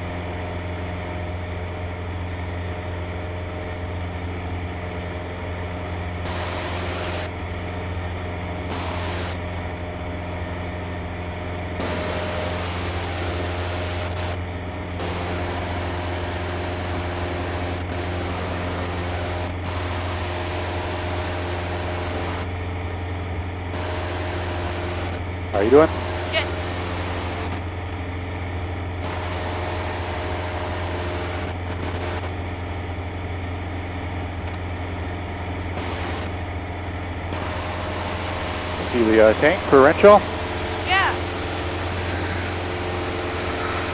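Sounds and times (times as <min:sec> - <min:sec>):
light aircraft engine droning: 0:00.0 - 0:43.9.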